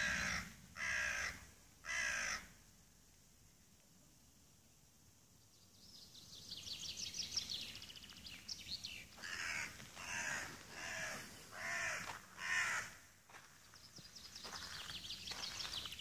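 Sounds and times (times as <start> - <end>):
birds twittering: 0.0 - 2.4, 5.4 - 16.0
harsh bird calls: 0.0 - 2.5, 5.8 - 13.1, 13.7 - 16.0.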